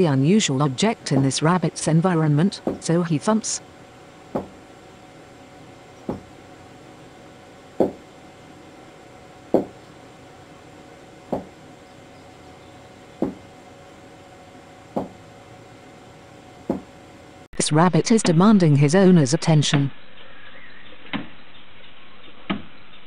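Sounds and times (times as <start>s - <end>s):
rabbit thumping hind feet: 4.3s - 4.6s.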